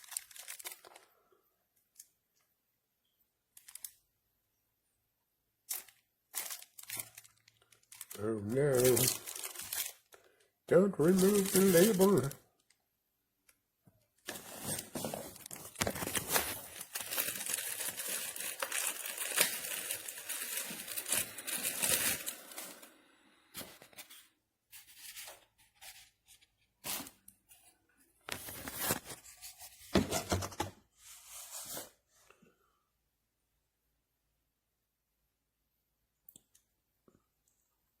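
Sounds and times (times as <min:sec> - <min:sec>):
wrapping paper tearing and rustling: 0:00.0 - 0:01.1, 0:03.6 - 0:03.9, 0:05.7 - 0:12.4, 0:14.3 - 0:22.9, 0:28.3 - 0:29.7.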